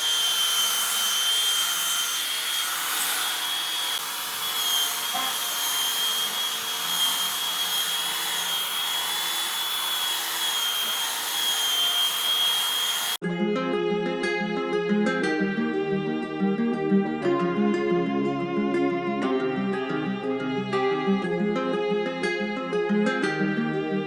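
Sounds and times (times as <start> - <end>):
power tool whining on wood: 0.0 - 13.2.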